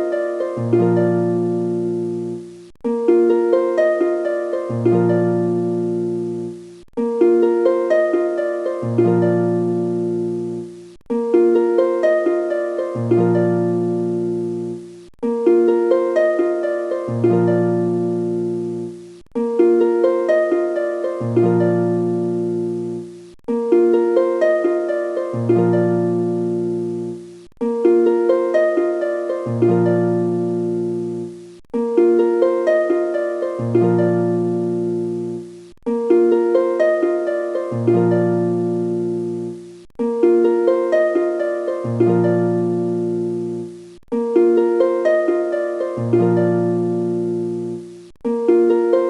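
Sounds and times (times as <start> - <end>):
looping plucked notes: 0.0 - 49.0.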